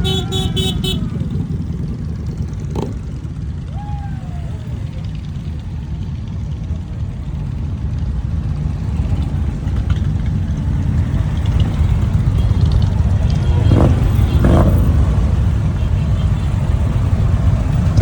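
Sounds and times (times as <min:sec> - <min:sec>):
motorcycle engines rumbling: 0:00.0 - 0:18.0.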